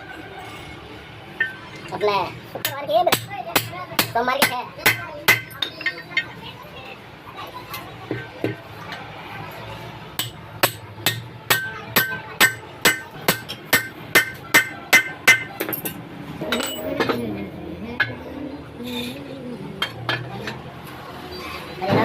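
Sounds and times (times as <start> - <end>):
hammer striking metal: 10.2 - 17.2.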